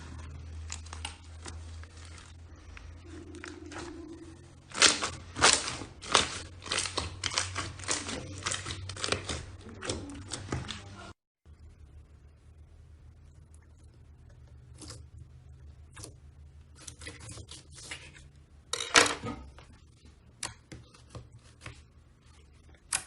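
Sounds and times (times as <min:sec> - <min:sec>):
slime crackling and squelching: 0:00.0 - 0:11.2
low steady hum: 0:00.0 - 0:23.0.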